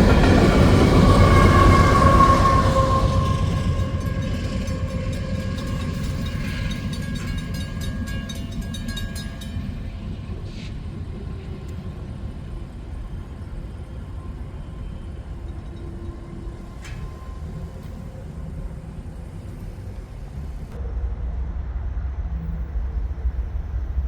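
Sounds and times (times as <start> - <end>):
wheels clicking over rail joints: 0.0 - 10.8
train low rumble: 0.0 - 24.0.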